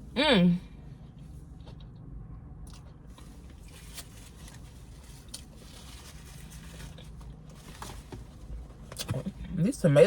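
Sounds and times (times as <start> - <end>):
low steady hum: 0.0 - 10.0
soft chewing: 1.0 - 7.6
handling of a sandwich: 3.1 - 9.0.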